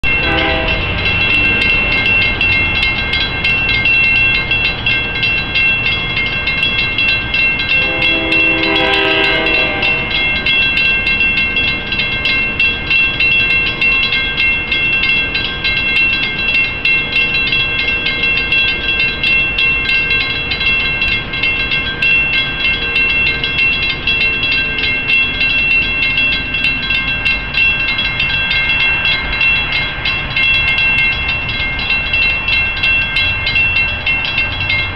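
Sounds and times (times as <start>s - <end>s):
locomotive horn blast: 0.0s - 1.1s, 7.8s - 10.4s
railroad crossing bell ringing: 0.0s - 34.9s
train rumbling past: 0.0s - 34.9s.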